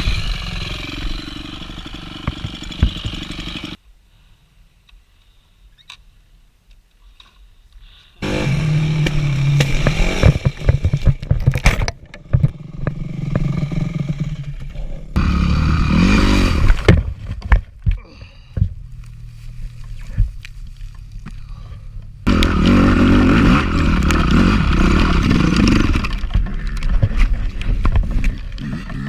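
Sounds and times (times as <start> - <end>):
dirt bike engine running hard: 0.0 - 3.8, 12.3 - 16.7, 22.2 - 29.0.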